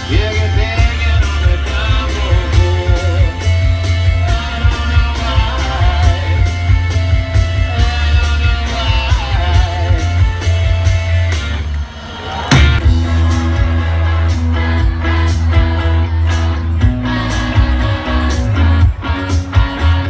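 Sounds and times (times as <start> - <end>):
person singing: 0.0 - 6.7, 7.6 - 10.3
steady drum beat: 0.0 - 11.7, 12.4 - 20.0
electric guitars: 0.0 - 20.0
heavy bass: 0.0 - 20.0.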